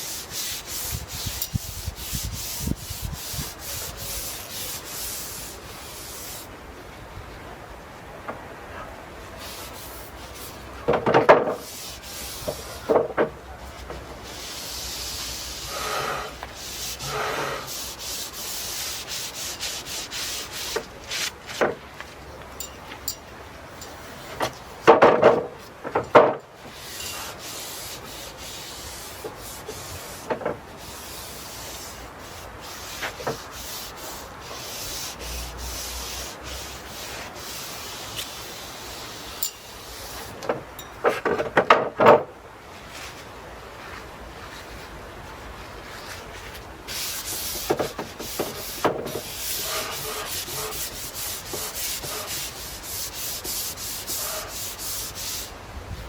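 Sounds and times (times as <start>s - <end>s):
brush scratching on wood planks: 0.0s - 6.5s, 9.4s - 22.2s, 26.6s - 40.6s, 43.8s - 55.6s
wooden knocks and clatters: 10.9s - 11.6s, 12.5s - 14.0s, 24.3s - 26.4s, 40.4s - 42.3s.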